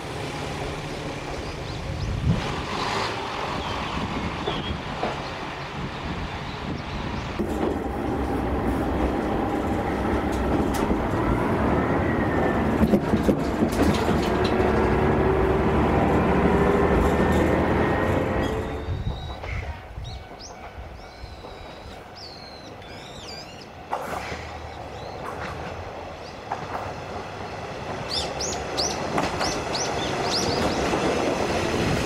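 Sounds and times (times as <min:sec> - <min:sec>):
diesel railcar rumbling: 0:00.0 - 0:32.0
birds chirping: 0:03.4 - 0:07.4, 0:18.4 - 0:23.9, 0:28.0 - 0:31.3
wheels clicking over rail joints: 0:07.4 - 0:11.6, 0:12.6 - 0:19.7, 0:23.9 - 0:32.0.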